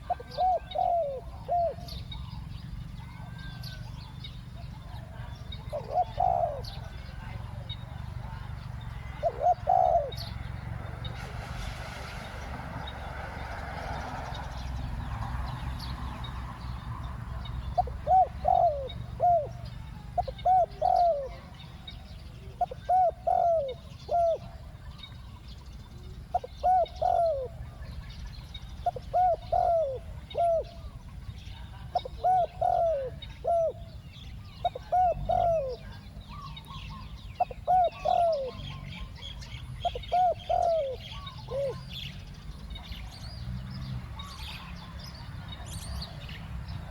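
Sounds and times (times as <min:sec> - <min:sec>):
dove cooing: 0:00.0 - 0:11.7, 0:17.0 - 0:25.4, 0:26.0 - 0:43.0
small birds chirping: 0:00.0 - 0:46.9.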